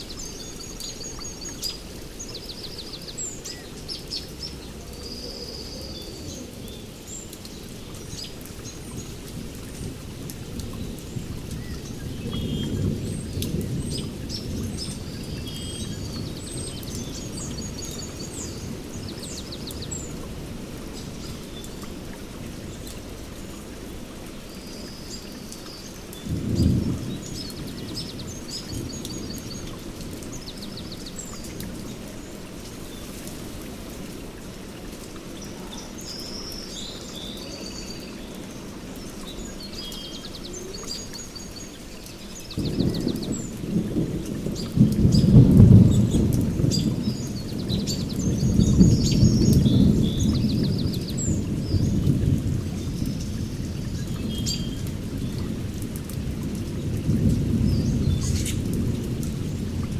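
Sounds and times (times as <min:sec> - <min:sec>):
steady rain: 0:00.0 - 0:59.9
thunder rumbling: 0:07.9 - 0:23.4, 0:26.2 - 0:34.5, 0:41.8 - 0:59.9.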